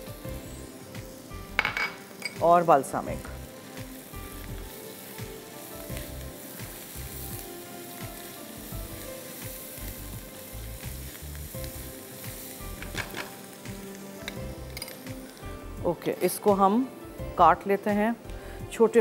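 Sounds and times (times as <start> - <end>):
onions sizzling in a pan: 0.0 - 19.0.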